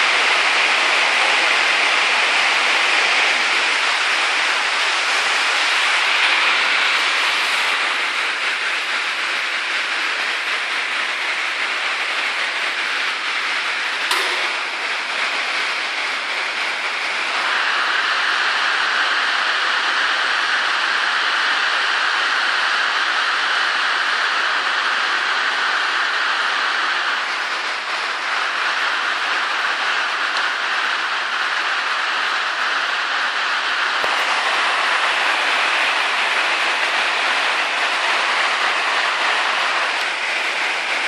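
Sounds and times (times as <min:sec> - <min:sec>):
heavy rain downpour: 0:00.0 - 0:41.0
sharp click: 0:14.1 - 0:14.7.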